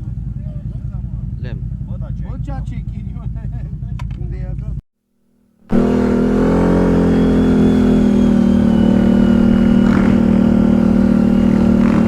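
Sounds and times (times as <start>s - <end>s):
motor humming: 5.7s - 12.0s.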